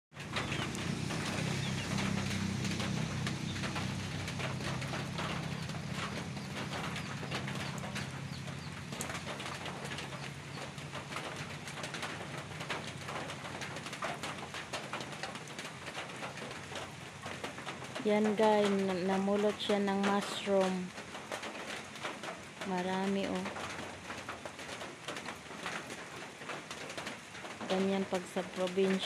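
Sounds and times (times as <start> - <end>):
low steady bird call: 0.2 - 12.2
birds calling: 0.2 - 14.4.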